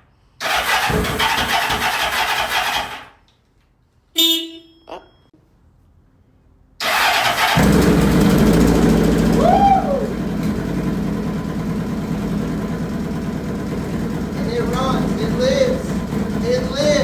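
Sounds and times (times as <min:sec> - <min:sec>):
motorcycle engine starting and idling: 0:00.4 - 0:03.2, 0:06.8 - 0:17.0.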